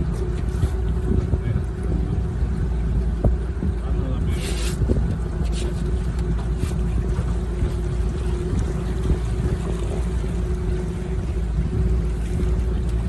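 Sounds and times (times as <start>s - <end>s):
boat motor droning: 0.0s - 13.0s.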